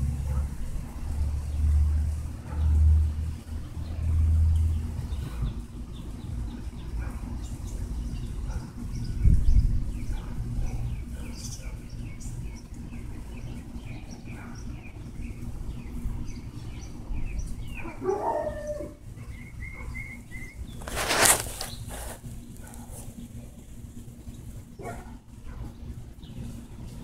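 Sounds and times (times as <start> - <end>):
birds chirping: 0.0 - 27.0
loud rustle: 20.7 - 23.2.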